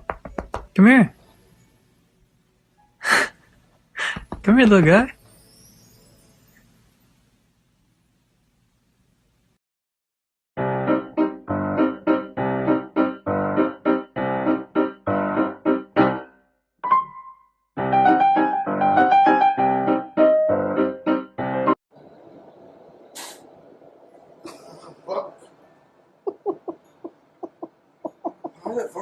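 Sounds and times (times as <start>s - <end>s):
piano playing repeated chords: 10.6s - 21.8s.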